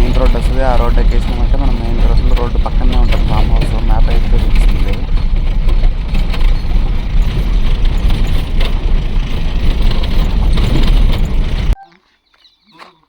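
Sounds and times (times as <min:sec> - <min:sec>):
cab and body rattling: 0:00.0 - 0:11.8
truck rumbling on dirt road: 0:00.0 - 0:11.8.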